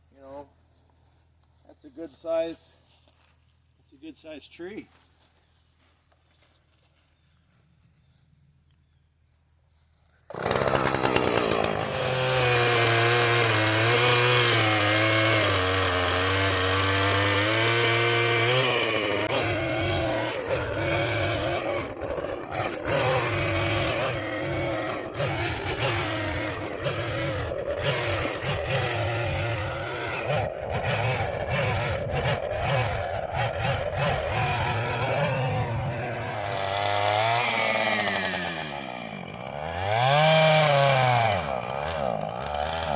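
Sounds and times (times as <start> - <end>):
chainsaw cutting wood: 10.3 - 42.9
chainsaw running: 10.3 - 42.9.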